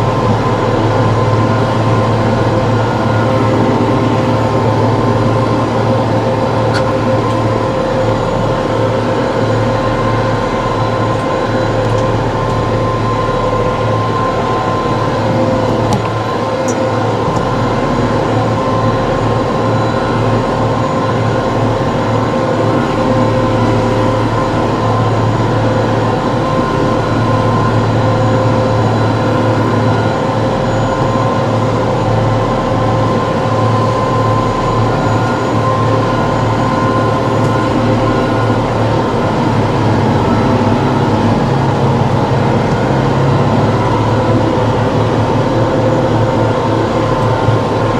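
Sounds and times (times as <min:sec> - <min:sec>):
tractor engine running: 0:33.9 - 0:47.9.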